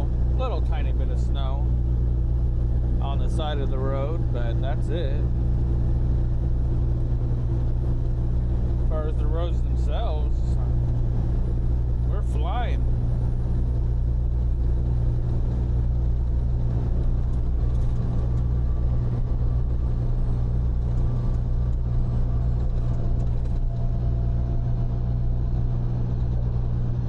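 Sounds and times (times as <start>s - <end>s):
road rumble: 0.0s - 27.0s
truck engine drone: 0.0s - 27.0s.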